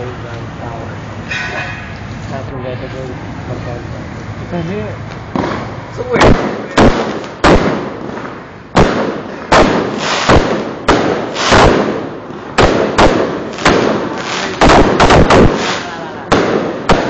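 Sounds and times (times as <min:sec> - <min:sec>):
fireworks exploding: 0:05.1 - 0:17.0.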